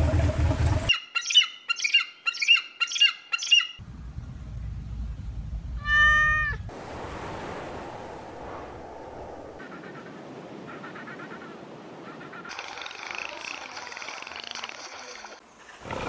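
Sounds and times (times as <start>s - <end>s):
eagle high piping calls: 0.9s - 3.8s
kitten meowing: 5.8s - 6.6s
low rumble: 6.6s - 9.6s.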